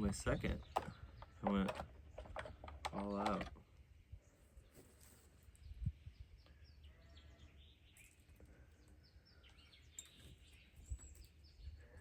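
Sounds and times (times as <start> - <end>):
faint bird chirps: 4.1 - 12.0.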